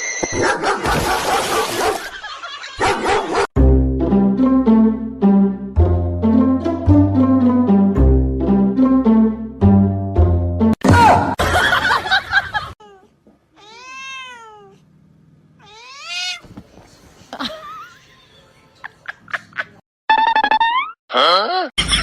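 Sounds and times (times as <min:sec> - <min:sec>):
cat meowing: 0:12.8 - 0:14.8, 0:15.6 - 0:16.5.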